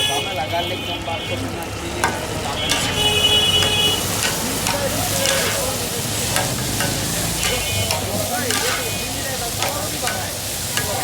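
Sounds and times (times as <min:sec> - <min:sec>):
meat sizzling in hot oil: 0:00.0 - 0:11.0
metal spatula knocks and scrapes: 0:02.0 - 0:09.0.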